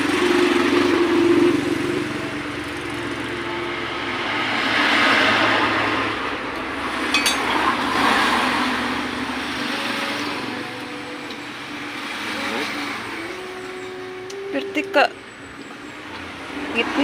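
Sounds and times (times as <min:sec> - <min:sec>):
scooter engine running: 0:00.0 - 0:17.0
short metallic clink: 0:07.1 - 0:07.6.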